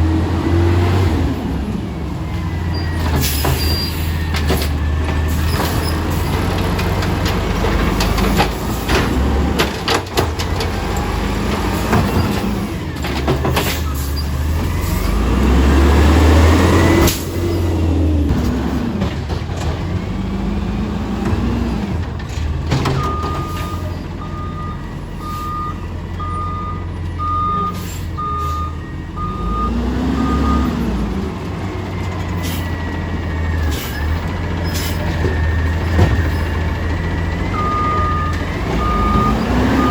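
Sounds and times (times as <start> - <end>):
diesel engine revving: 0.0 - 39.9
metal clanks and knocks: 3.0 - 14.0, 21.2 - 23.9.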